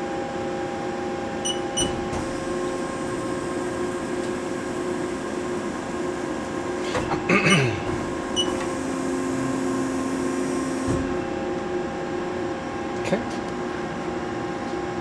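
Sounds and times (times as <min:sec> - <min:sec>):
short control panel beeps: 0:01.4 - 0:02.0
lathe humming: 0:08.1 - 0:12.9.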